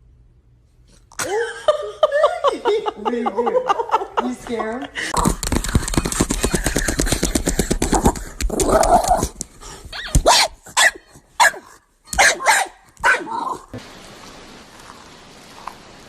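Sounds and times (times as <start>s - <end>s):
dog barking: 10.0s - 13.7s.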